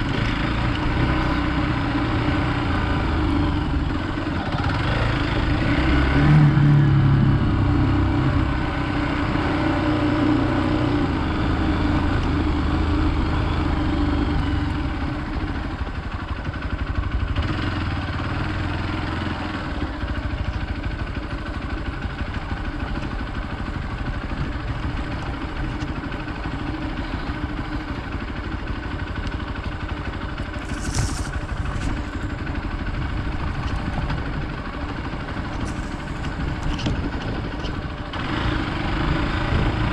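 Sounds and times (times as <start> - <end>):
motorcycle engine running: 0.0 - 39.9
wind noise: 35.5 - 38.0.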